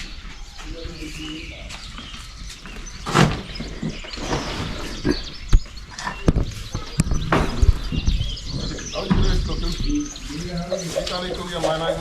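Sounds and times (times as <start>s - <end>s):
birds chirping: 0.0s - 12.0s
knocks and thuds: 3.0s - 10.0s.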